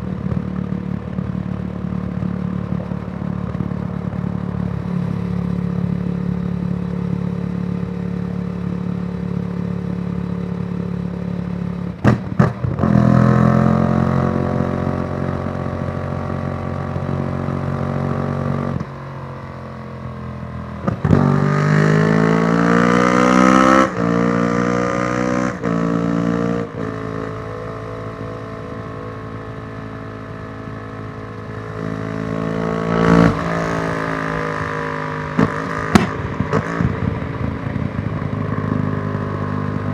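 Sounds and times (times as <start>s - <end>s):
motorcycle engine revving: 12.0s - 39.9s.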